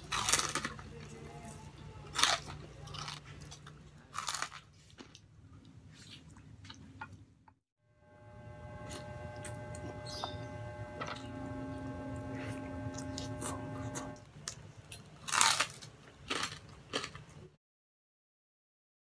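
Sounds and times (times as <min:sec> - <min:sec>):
loud crunches of biting: 0:00.0 - 0:00.8, 0:02.2 - 0:04.7, 0:15.2 - 0:17.2.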